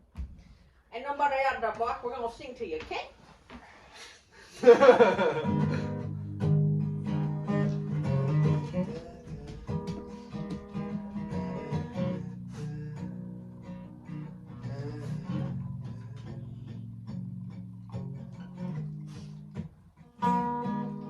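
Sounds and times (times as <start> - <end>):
acoustic guitar plucked and strummed: 4.6 - 21.0.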